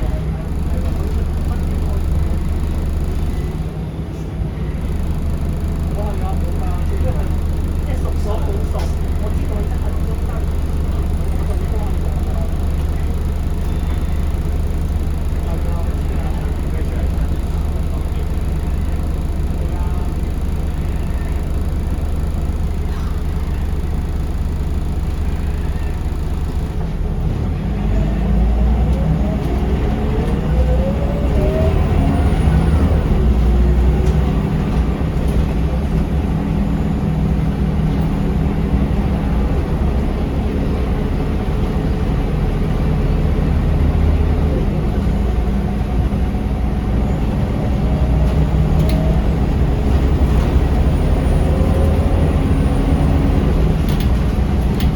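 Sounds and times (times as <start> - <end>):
bus engine whining: 0.0 - 54.9.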